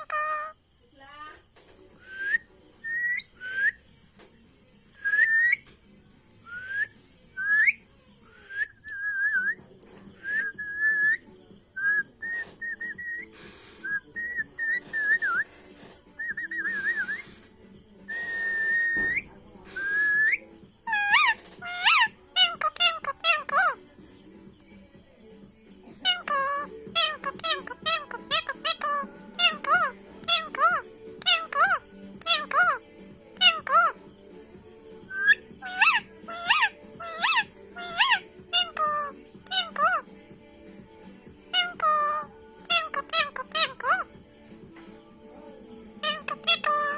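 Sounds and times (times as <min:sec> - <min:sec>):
parrot whistling: 0:00.0 - 0:00.6, 0:02.0 - 0:03.8, 0:05.0 - 0:05.6, 0:10.2 - 0:11.2, 0:11.8 - 0:15.6, 0:16.2 - 0:17.4, 0:18.1 - 0:23.8, 0:26.0 - 0:32.8, 0:33.4 - 0:34.0, 0:35.1 - 0:40.1, 0:41.5 - 0:44.1, 0:46.0 - 0:46.9.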